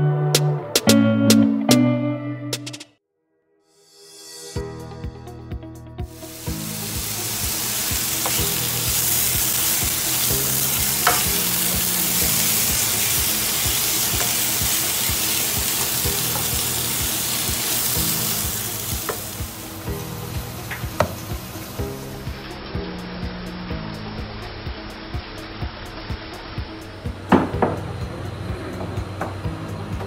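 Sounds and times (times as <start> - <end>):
background music with a beat: 0.0 - 3.0, 4.1 - 30.0
meat and onion sizzling: 6.1 - 27.6.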